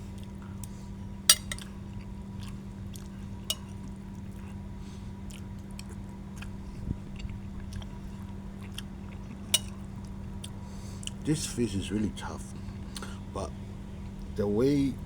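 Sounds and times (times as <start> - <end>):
person chewing food: 0.0 - 11.2, 12.7 - 13.3
steady low hum: 0.0 - 15.0.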